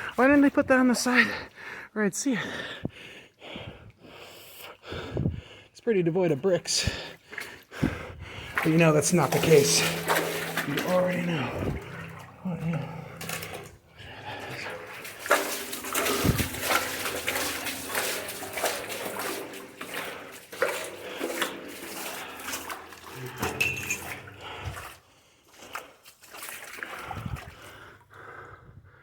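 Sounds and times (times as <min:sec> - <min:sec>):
water splashing and trickling: 0:06.6 - 0:28.3.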